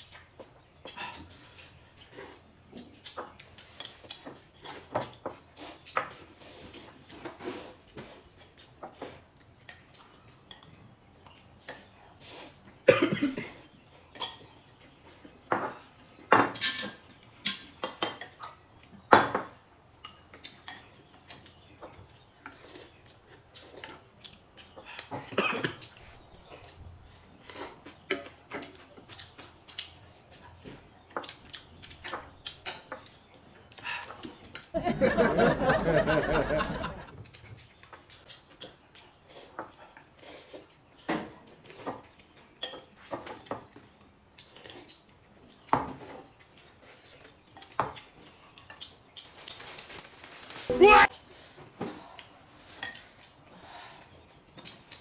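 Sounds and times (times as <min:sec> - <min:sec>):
cutlery and dishes clinking: 0:03.0 - 0:06.2, 0:15.5 - 0:22.7, 0:41.1 - 0:43.9, 0:47.4 - 0:48.9, 0:52.7 - 0:53.3.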